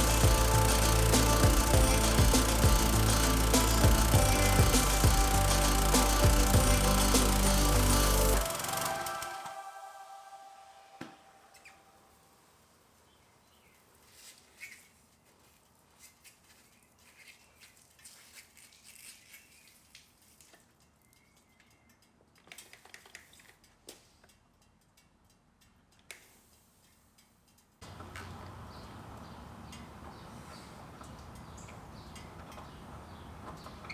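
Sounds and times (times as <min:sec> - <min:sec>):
faint clicks and ticks: 0:20.3 - 0:33.9.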